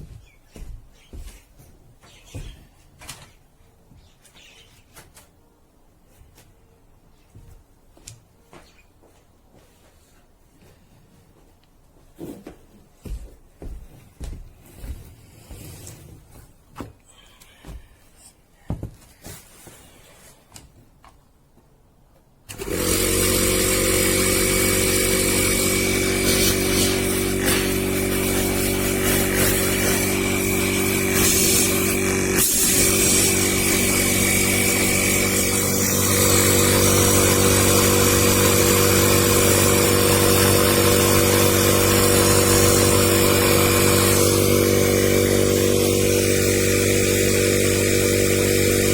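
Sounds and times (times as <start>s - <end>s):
compressor humming: 22.5s - 48.9s.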